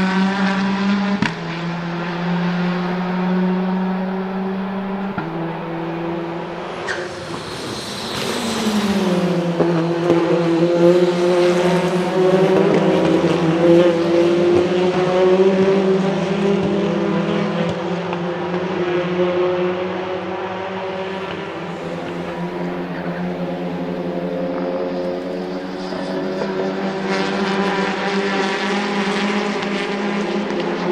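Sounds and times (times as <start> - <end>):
car engine and exhaust running: 0.2 - 10.7.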